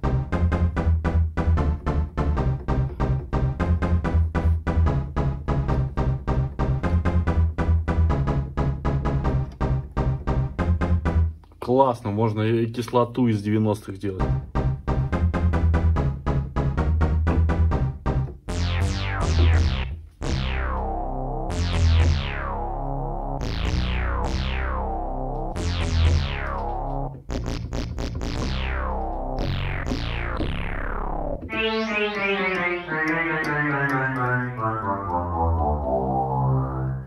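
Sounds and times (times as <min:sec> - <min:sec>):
synth bass line: 0:14.6 - 0:37.0
synthesizer note run: 0:18.5 - 0:37.0
gliding synth sound: 0:28.2 - 0:37.0.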